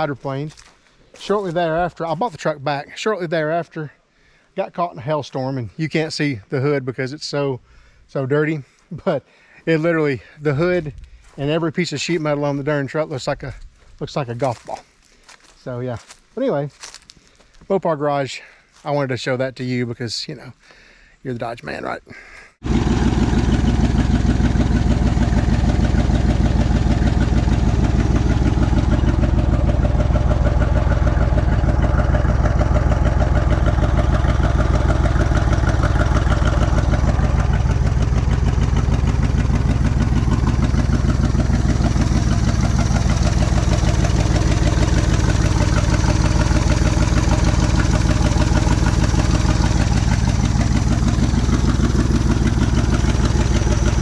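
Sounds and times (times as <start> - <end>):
engine idling with misfire: 22.6 - 54.0.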